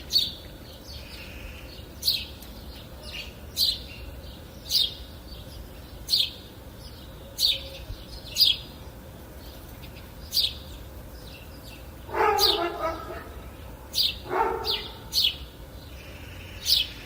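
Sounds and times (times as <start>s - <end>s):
songbird chirping: 0.0s - 17.0s.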